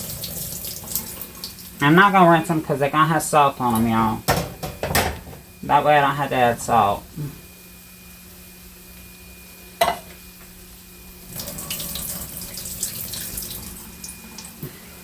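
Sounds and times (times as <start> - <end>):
steady low hum: 1.1 - 15.0
liquid splashing into sink: 11.3 - 14.7.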